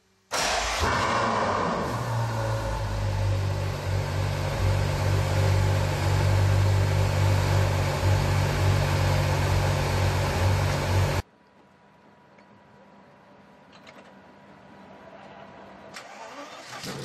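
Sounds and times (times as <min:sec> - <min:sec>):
car engine idling: 0:00.4 - 0:11.2.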